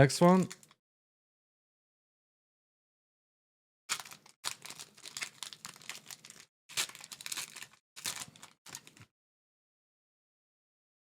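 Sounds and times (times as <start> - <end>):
card pack wrapper tearing and crinkling: 3.9 - 9.1.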